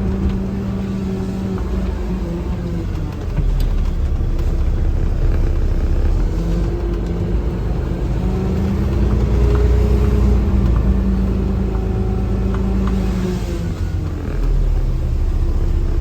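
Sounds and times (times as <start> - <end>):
garbage truck engine rumbling: 0.0 - 16.0.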